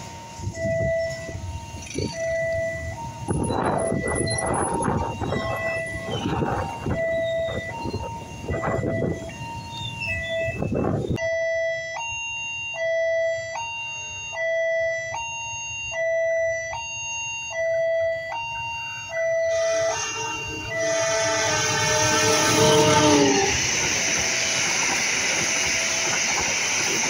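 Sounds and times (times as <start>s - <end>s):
level crossing two-tone alarm: 0.0s - 27.0s
locomotive horn: 19.1s - 24.0s
locomotive rumble passing: 19.5s - 27.0s.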